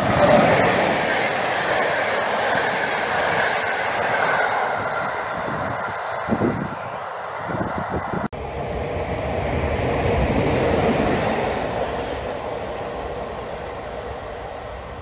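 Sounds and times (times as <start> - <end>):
electric locomotive passing: 0.0 - 15.0
train receding: 0.0 - 15.0.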